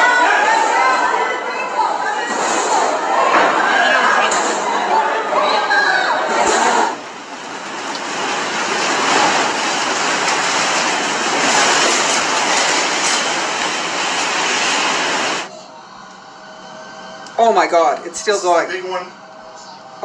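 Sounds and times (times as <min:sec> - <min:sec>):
building rumbling and rattling: 0:00.0 - 0:15.5.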